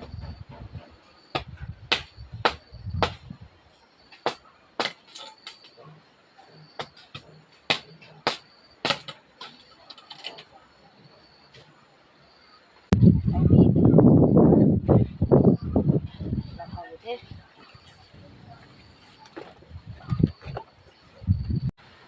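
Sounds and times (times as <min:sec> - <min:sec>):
hand tool striking: 0:06.8 - 0:10.4.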